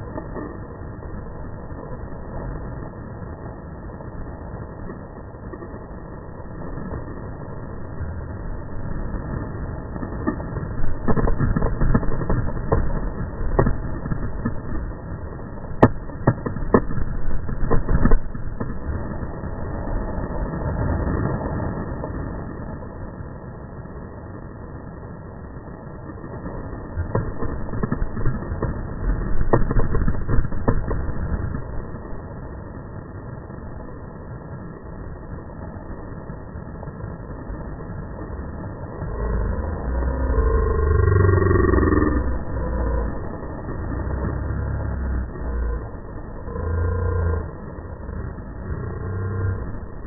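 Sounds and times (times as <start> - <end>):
water rumbling: 0.0 - 50.0
wind noise on camera: 6.4 - 22.8, 26.3 - 32.3.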